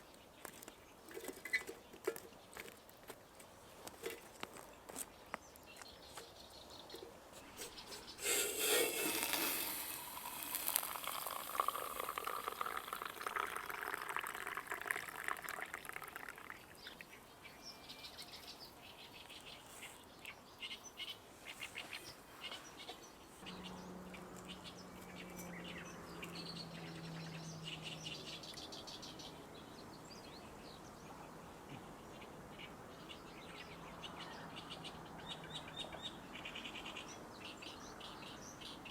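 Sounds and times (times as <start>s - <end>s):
small birds chirping: 0.0s - 38.9s
loud rasping scraping: 7.4s - 10.7s.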